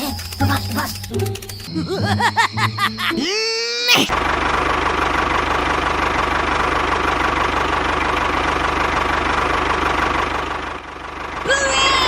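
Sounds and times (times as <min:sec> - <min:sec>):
engine idling: 0:04.1 - 0:12.0.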